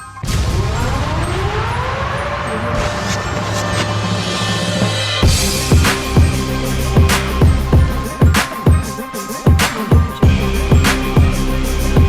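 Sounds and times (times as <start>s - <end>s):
electronic music with heavy beat: 0.0s - 12.0s
deep kick drums: 5.2s - 8.9s, 9.5s - 11.4s
sharp snare hits: 8.2s - 10.2s.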